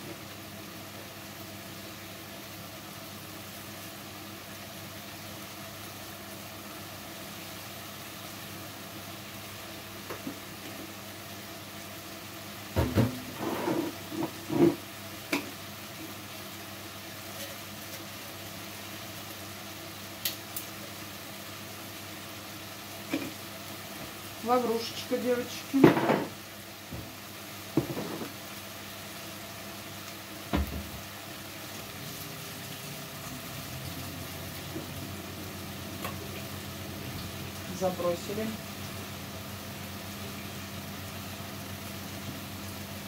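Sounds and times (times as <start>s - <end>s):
chicken sizzling in pan: 0.0s - 43.0s
kitchen things knocking and clinking: 25.8s - 26.4s.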